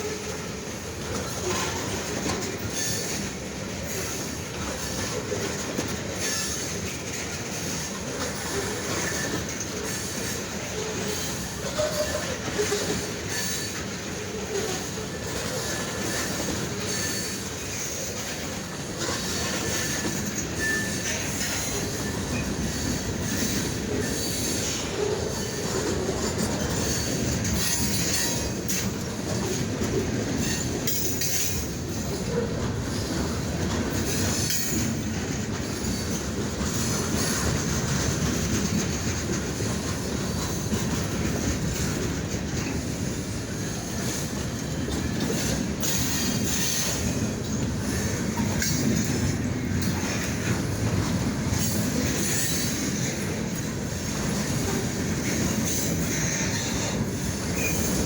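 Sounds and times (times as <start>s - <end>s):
freight train wheels on rails: 0.0s - 58.0s
faint high squeal: 20.6s - 21.0s.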